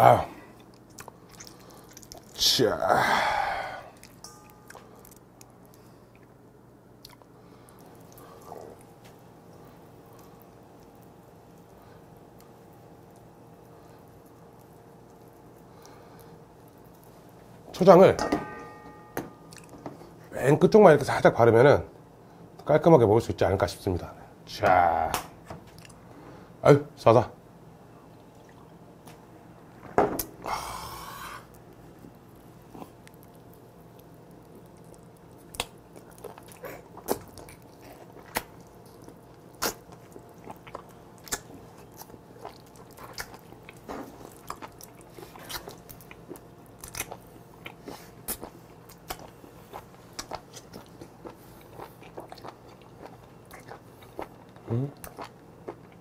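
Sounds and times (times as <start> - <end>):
wet chewing mouth clicks: 0.6 - 2.4, 32.3 - 56.0.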